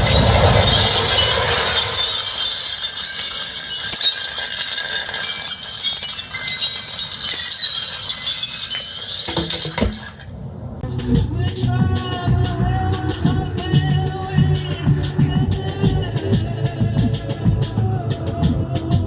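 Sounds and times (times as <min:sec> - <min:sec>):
high-pitched jingling and clinking: 0:00.5 - 0:10.4.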